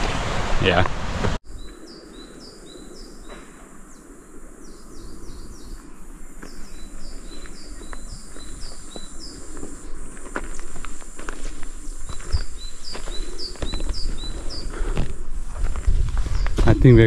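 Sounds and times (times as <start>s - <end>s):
small birds chirping: 1.4s - 15.4s, 16.2s - 17.0s
high insect hiss: 1.4s - 17.0s
footsteps crunching on stony trail: 6.3s - 17.0s.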